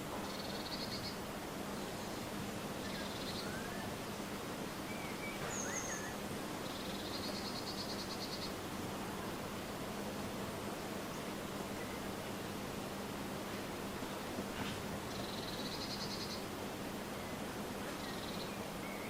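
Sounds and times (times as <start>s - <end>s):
outdoor background noise: 0.0s - 19.0s
bird chirps: 4.9s - 8.6s.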